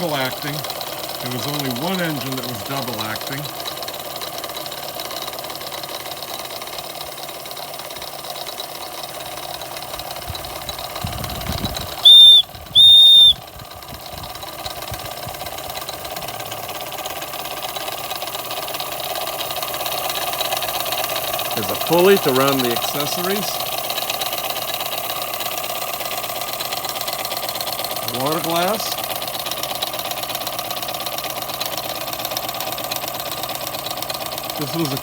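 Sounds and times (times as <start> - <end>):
toy steam engine running: 0.0 - 35.0
high-pitched steam whistle blasts: 12.0 - 13.4.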